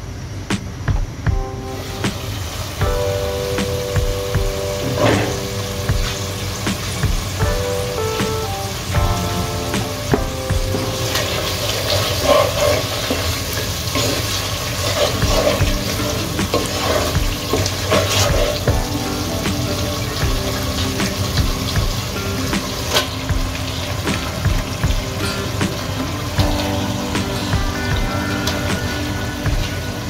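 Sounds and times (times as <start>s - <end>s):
food sizzling in oil: 1.7s - 30.0s.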